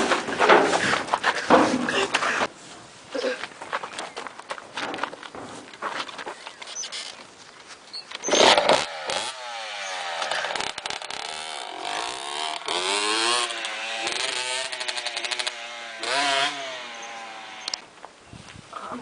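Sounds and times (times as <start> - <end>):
engine revving: 8.2 - 17.8.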